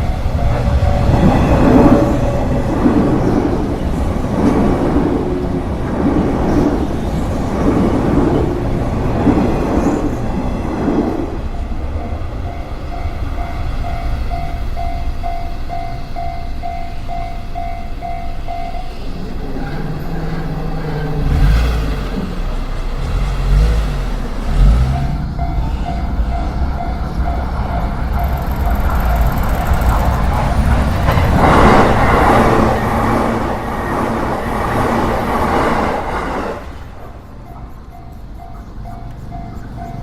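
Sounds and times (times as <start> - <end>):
train wheels clattering over rail joints: 0.0 - 40.0
level crossing warning bell: 11.5 - 21.1, 37.6 - 40.0
road vehicle rumbling past: 19.0 - 37.8.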